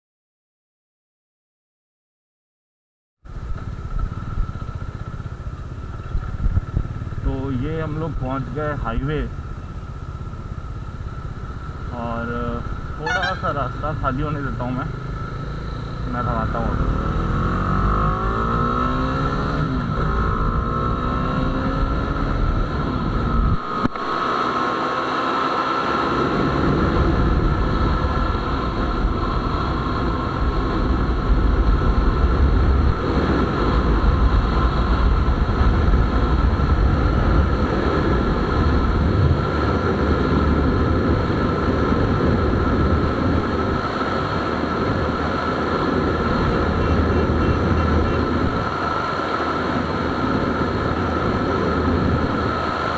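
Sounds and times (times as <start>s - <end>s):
wind rush on microphone: 3.3s - 8.7s, 19.3s - 24.3s, 26.1s - 52.9s
motorcycle engine accelerating: 3.3s - 52.9s.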